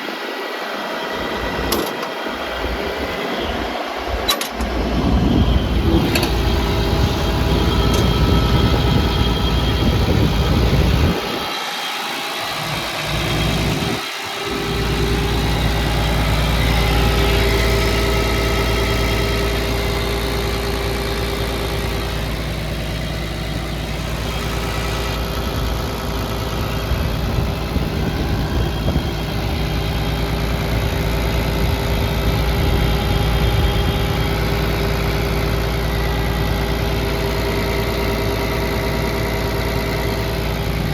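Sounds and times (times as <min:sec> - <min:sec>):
excavator diesel engine idling: 0:00.7 - 0:40.9.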